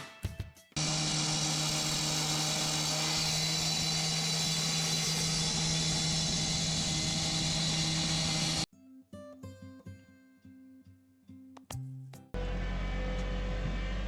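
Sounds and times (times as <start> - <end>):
machine motor humming with hiss: 0.8 - 8.6.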